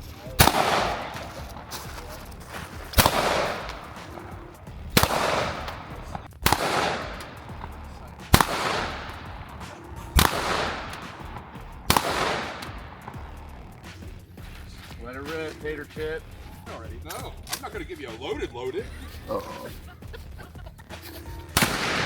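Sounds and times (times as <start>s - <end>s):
gunshots with rolling echo: 0.0s - 14.4s, 21.6s - 22.0s.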